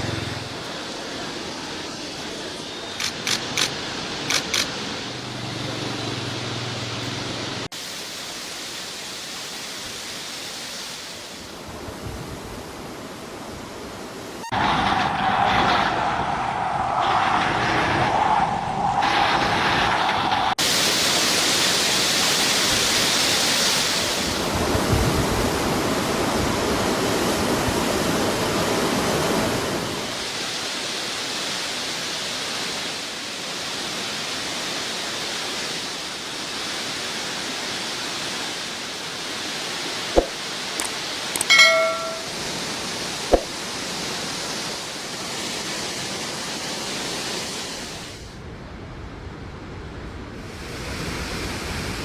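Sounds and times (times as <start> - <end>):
sharp clicks: 3.0 - 4.8, 40.2 - 41.5
floodwater rushing: 17.8 - 48.4
brief pitched tone: 41.4 - 42.3.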